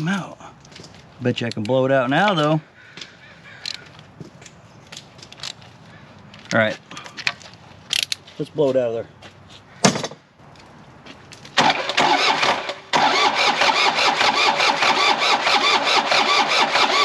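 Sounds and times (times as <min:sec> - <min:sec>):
sharp clunk: 0:09.8 - 0:10.2
diesel engine cranked by starter: 0:11.6 - 0:17.0.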